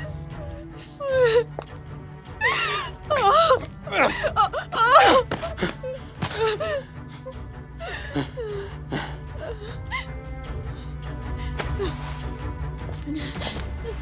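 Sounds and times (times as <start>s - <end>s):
tense drama score drone: 0.0s - 14.0s
person gasping and whimpering: 2.4s - 12.4s, 13.0s - 14.0s.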